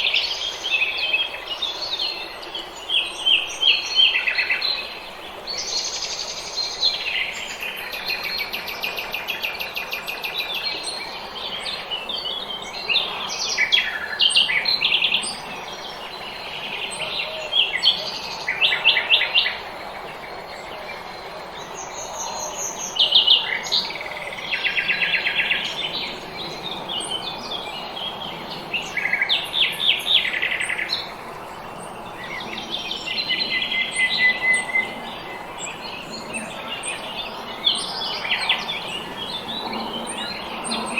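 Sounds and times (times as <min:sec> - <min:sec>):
songbirds trilling and chirping: 0:00.0 - 0:40.9.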